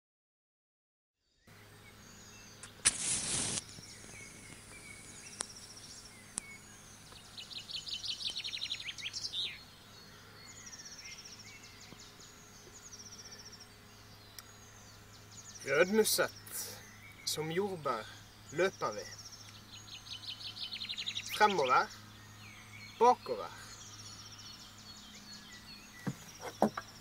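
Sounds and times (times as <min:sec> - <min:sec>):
songbirds singing: 0:01.2 - 0:27.0
short rushing burst of noise: 0:02.7 - 0:04.5.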